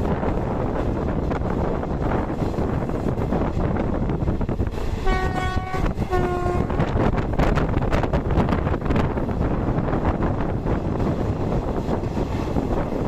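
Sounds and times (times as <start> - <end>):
moving train rumble and wind: 0.0 - 13.0
wheels clacking on rails: 0.0 - 13.0
train horn blasts: 5.0 - 6.9.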